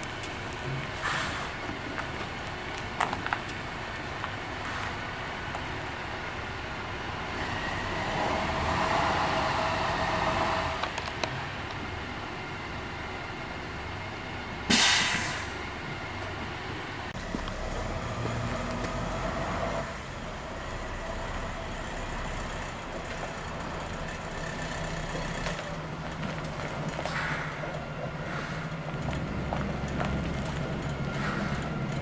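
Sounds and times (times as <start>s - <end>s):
bus diesel engine running: 0.0s - 32.0s
air brake hiss: 1.0s - 1.6s, 4.6s - 5.0s, 14.7s - 15.6s, 27.1s - 28.7s, 31.2s - 31.8s.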